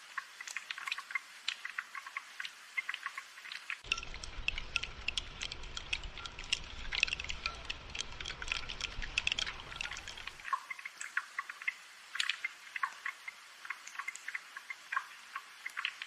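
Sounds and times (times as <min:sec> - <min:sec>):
raindrops pattering on hard surfaces: 0:00.1 - 0:16.0
low steady rumbling: 0:03.9 - 0:10.4.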